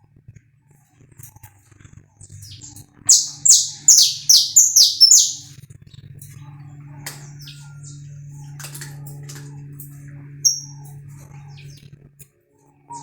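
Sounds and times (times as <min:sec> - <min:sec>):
finch singing: 0:03.1 - 0:05.5, 0:10.4 - 0:10.8
steady low hum: 0:10.5 - 0:10.8.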